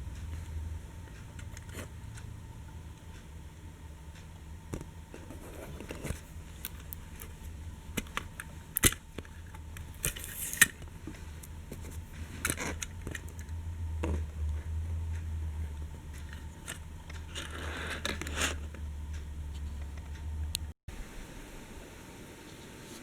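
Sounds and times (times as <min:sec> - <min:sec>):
low steady hum: 0:00.0 - 0:23.0
small clicks and knocks: 0:04.7 - 0:14.8.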